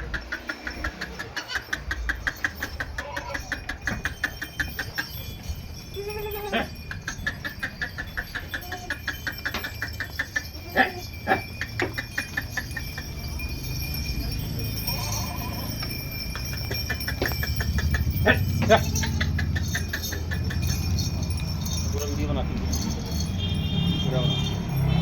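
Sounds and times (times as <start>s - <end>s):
goat bleating: 1.2s - 1.9s, 2.8s - 3.6s, 6.0s - 6.8s, 8.3s - 9.6s, 14.8s - 15.9s, 18.2s - 19.6s.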